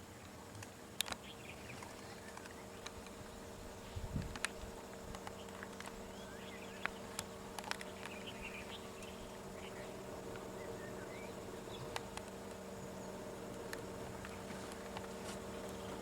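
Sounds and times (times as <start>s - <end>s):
insect buzzing: 1.0s - 16.0s
faint bird chirps: 5.3s - 12.1s
sharp clicks: 6.7s - 9.2s, 11.7s - 12.6s.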